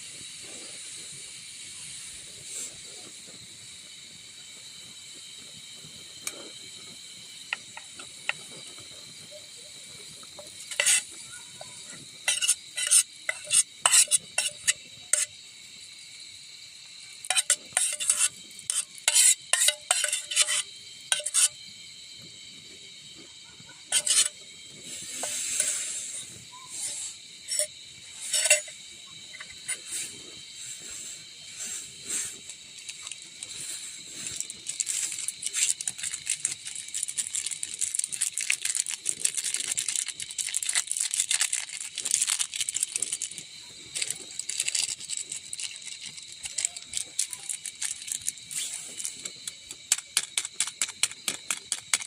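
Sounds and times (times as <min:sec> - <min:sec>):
steady high hiss: 0:00.0 - 0:52.0
metal spoon scraping pot: 0:10.0 - 0:15.4, 0:17.2 - 0:21.6, 0:23.9 - 0:30.2.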